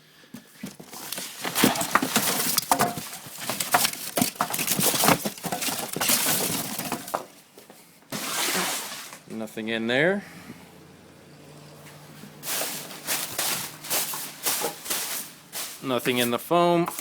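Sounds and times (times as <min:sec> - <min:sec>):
hands rummaging packing material: 0:00.4 - 0:09.3, 0:12.3 - 0:17.0.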